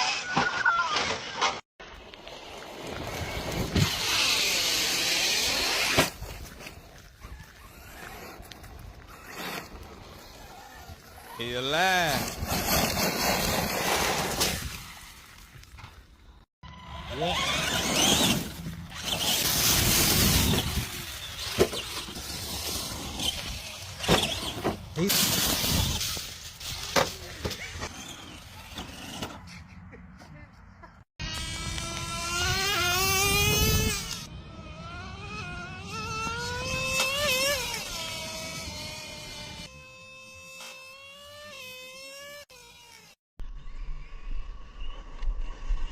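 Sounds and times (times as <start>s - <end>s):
rc car motor whine: 3.0s - 13.8s, 16.6s - 26.8s, 27.4s - 29.3s, 31.2s - 43.2s.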